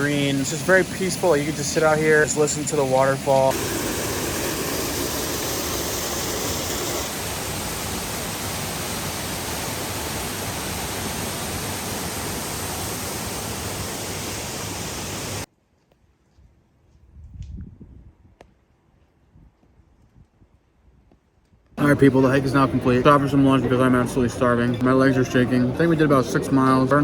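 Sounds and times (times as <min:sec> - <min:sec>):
waterfall roaring: 0:00.0 - 0:15.5.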